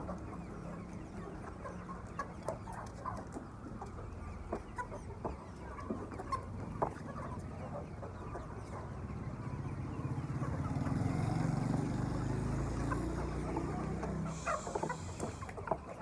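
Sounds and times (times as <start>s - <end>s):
chickens clucking: 0.0s - 16.0s
motor engine running: 9.7s - 15.6s.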